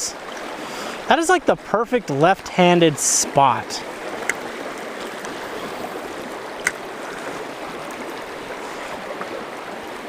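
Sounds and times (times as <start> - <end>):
river water rushing over rocks: 0.0 - 10.0.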